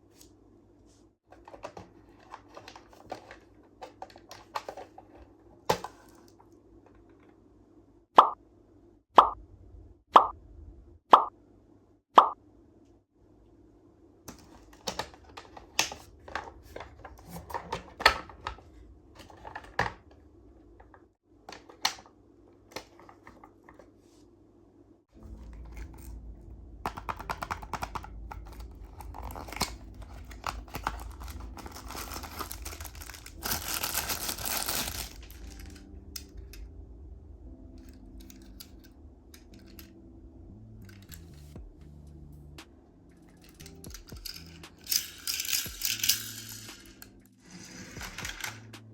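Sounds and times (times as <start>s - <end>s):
packaging crinkling and tearing: 26.9s - 35.9s.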